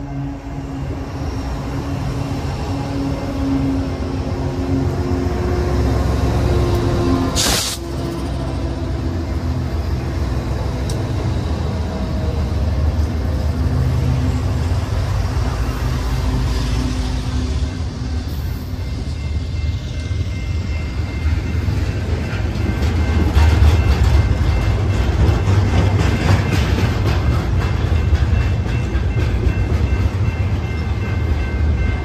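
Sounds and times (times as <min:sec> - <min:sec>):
diesel locomotives rumbling: 0:00.0 - 0:32.0
short sharp hiss: 0:07.4 - 0:07.8.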